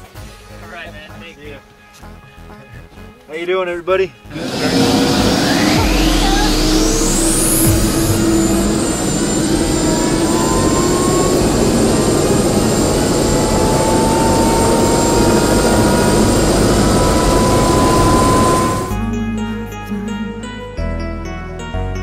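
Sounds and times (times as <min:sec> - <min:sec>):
helicopter engine and rotors: 0:04.3 - 0:19.0
rising whine: 0:04.3 - 0:19.3.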